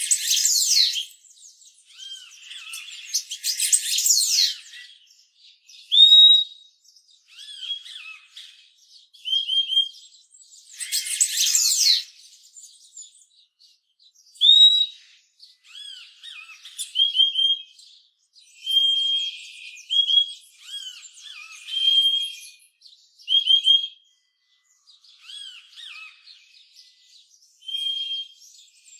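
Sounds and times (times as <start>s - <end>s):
bird whistled call notes: 0.0s - 1.2s, 1.9s - 5.0s, 5.8s - 6.6s, 10.7s - 12.1s, 14.4s - 17.8s, 18.5s - 22.7s, 27.6s - 28.6s
faint bird twittering: 0.0s - 6.4s, 7.3s - 13.6s, 24.5s - 28.9s.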